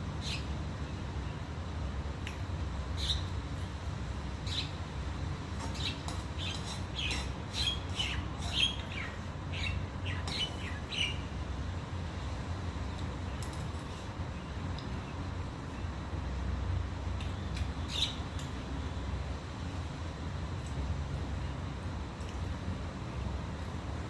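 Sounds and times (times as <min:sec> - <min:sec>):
steady low hum: 0:00.0 - 0:24.0
birds chirping: 0:03.0 - 0:03.3, 0:04.4 - 0:04.8, 0:05.6 - 0:11.3, 0:17.8 - 0:18.3.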